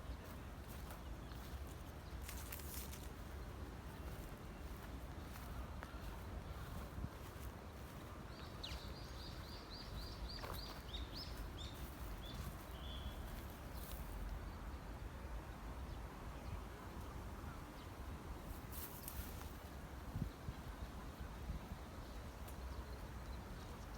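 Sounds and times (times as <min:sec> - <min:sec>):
songbird chirping: 0:00.0 - 0:19.6
outdoor background noise: 0:00.0 - 0:23.9.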